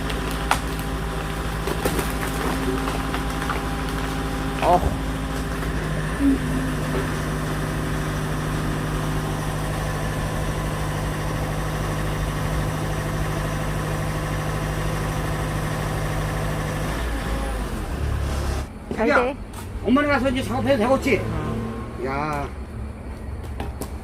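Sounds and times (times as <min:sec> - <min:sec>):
engine idling with even hum: 0:00.0 - 0:24.0.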